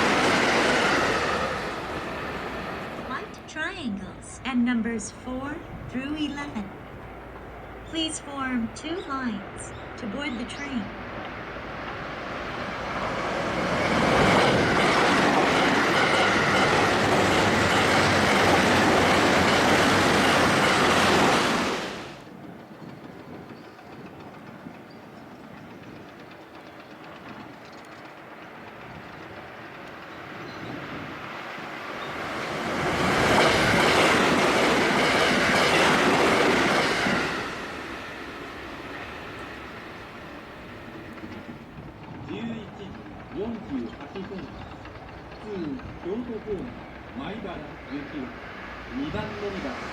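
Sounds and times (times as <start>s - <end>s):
train passing at speed: 0.0s - 49.9s
clatter over rail joints: 22.5s - 31.5s, 39.6s - 47.7s.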